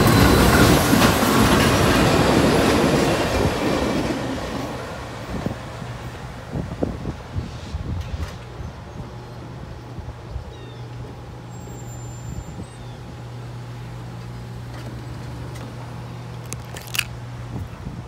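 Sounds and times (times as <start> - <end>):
diesel locomotive hum: 0.0 - 18.0.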